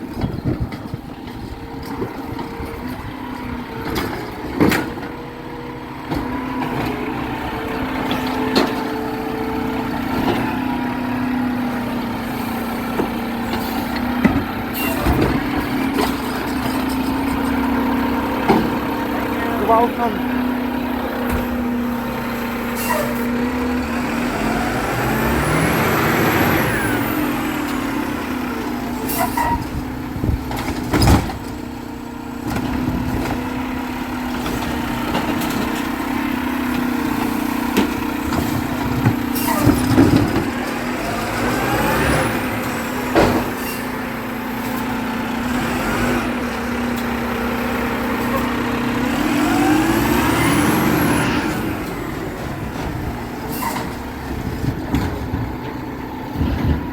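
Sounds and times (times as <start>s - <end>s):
garbage truck engine humming: 0.0s - 56.9s
metal clanks and knocks: 29.0s - 31.6s.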